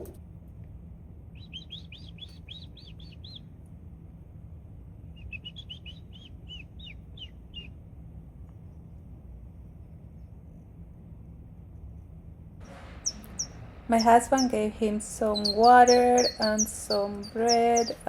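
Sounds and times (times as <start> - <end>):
low background rumble: 0.0 - 18.0
small bird chirping: 1.3 - 3.6, 5.0 - 7.9, 12.6 - 18.0.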